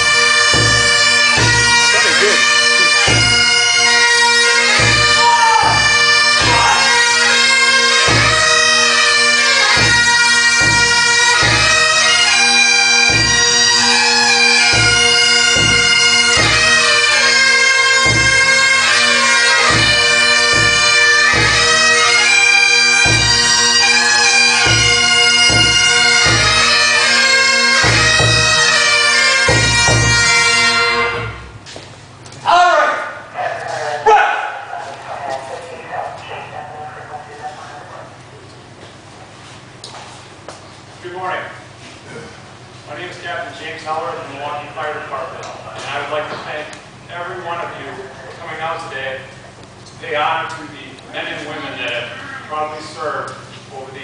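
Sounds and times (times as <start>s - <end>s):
bagpipes playing: 0.0s - 31.6s
low drum beat: 0.4s - 3.6s, 4.7s - 6.8s, 8.0s - 8.6s, 9.7s - 12.0s, 13.0s - 14.0s, 14.6s - 17.0s, 18.0s - 18.7s, 23.0s - 23.6s, 24.5s - 26.9s, 27.8s - 28.8s, 29.5s - 30.4s.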